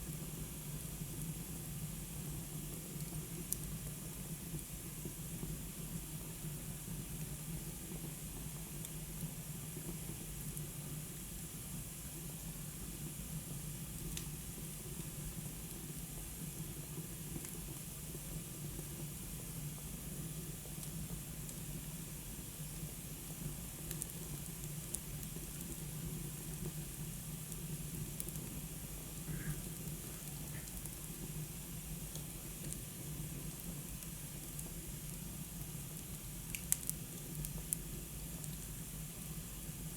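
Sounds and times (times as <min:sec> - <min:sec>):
fire crackling: 0:23.7 - 0:38.8.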